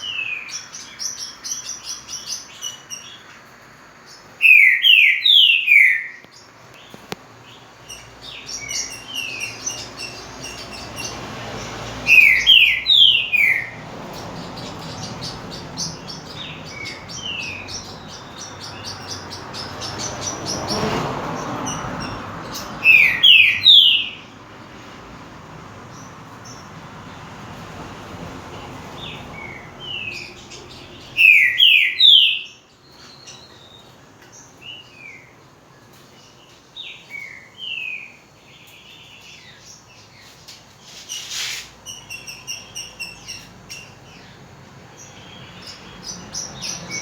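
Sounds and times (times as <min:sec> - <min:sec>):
high bird chirps: 0:04.1 - 0:24.3, 0:29.0 - 0:35.2, 0:36.8 - 0:44.4
bird whistling song phrases: 0:04.4 - 0:06.3, 0:12.1 - 0:13.8, 0:22.8 - 0:24.2, 0:31.0 - 0:33.9.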